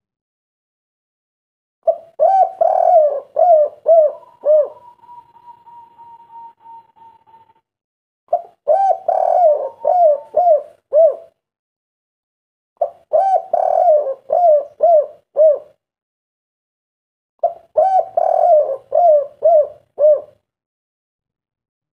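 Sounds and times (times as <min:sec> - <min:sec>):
dove cooing: 0:01.8 - 0:07.6, 0:08.3 - 0:11.4, 0:12.8 - 0:15.8, 0:17.4 - 0:20.4.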